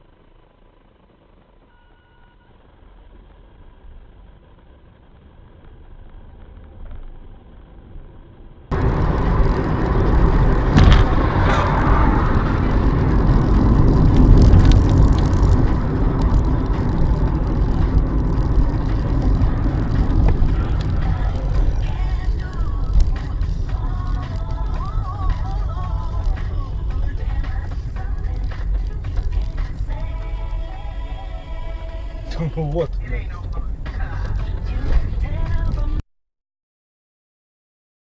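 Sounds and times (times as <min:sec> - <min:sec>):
car engine and road noise: 0:00.0 - 0:36.0
sharp knocks: 0:10.7 - 0:11.2.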